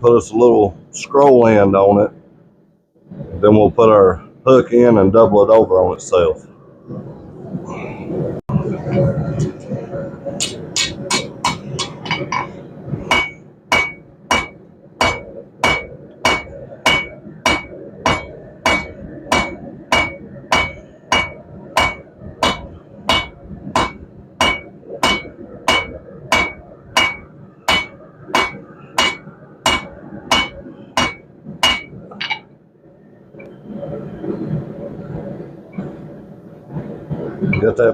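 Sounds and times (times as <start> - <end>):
hammer ringing on anvil: 10.4 - 12.5, 13.1 - 32.4.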